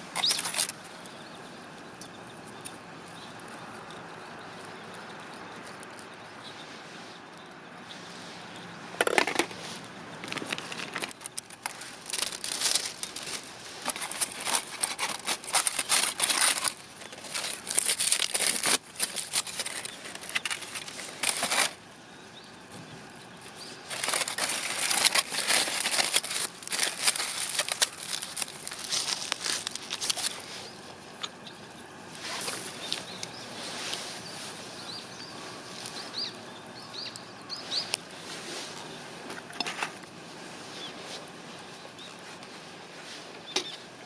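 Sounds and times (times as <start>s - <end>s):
crinkling and rustling: 0.0s - 1.2s, 9.0s - 21.9s, 22.6s - 36.4s, 37.6s - 43.9s.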